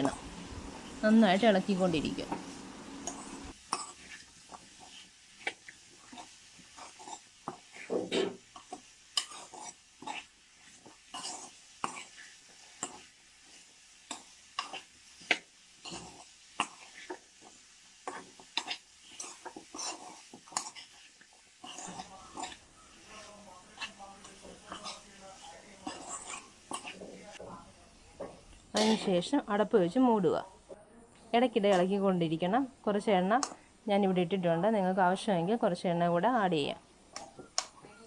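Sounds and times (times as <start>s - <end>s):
spatula scraping a pan: 2.3s - 27.5s, 28.3s - 29.2s.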